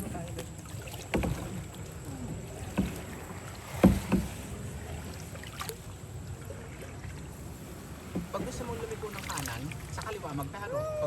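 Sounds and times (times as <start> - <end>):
paddle knocking on boat: 0.0 - 5.8, 7.6 - 10.3
paddle strokes in water: 0.0 - 10.6.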